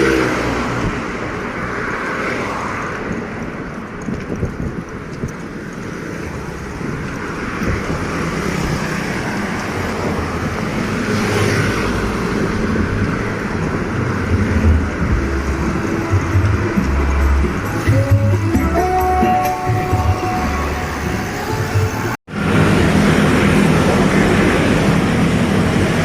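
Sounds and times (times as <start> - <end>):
wind rumble on microphone: 0.0 - 18.2
motor vehicle passing: 6.2 - 18.2.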